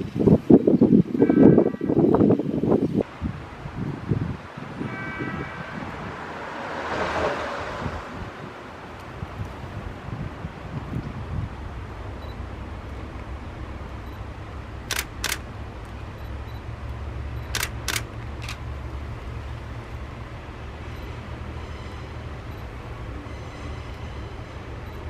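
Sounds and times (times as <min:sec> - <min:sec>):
slow train rumbling: 0:00.0 - 0:25.0
sharp clicks: 0:14.9 - 0:16.0, 0:17.4 - 0:18.6.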